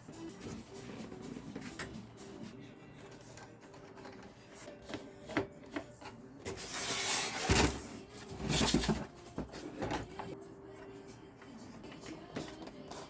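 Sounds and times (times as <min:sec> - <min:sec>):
scraping or rubbing: 0:06.5 - 0:09.4.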